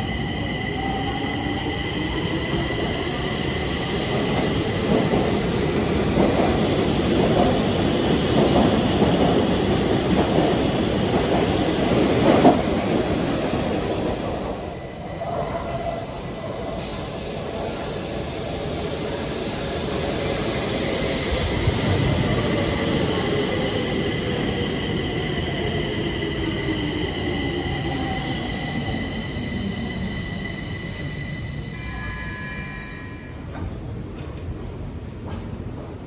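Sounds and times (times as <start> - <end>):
train rumbling on rails: 0.0 - 36.0.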